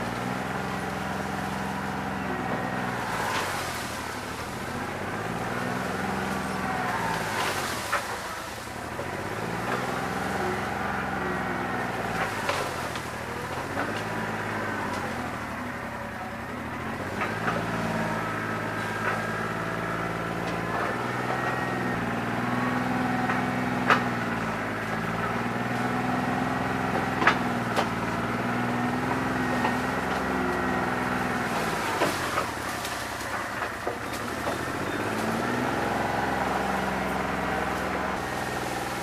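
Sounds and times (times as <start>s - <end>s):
tractor diesel engine running rough: 0.0s - 39.0s.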